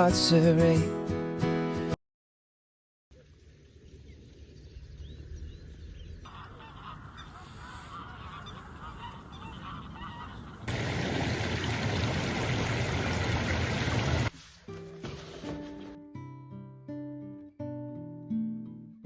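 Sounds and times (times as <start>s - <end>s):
honking bird calls: 5.9s - 10.7s.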